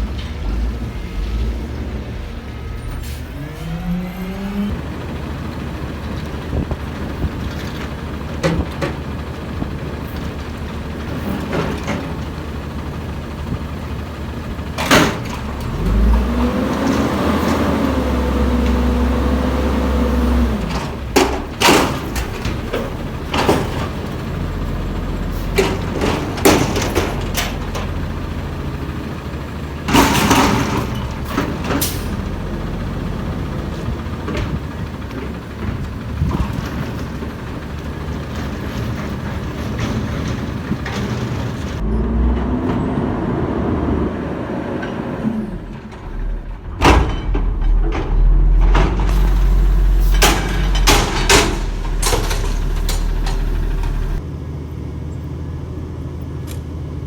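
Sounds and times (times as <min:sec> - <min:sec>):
garbage truck engine revving: 0:00.0 - 0:57.0
metallic bangs and clanks: 0:20.6 - 0:28.8, 0:29.8 - 0:41.8, 0:45.4 - 0:54.2.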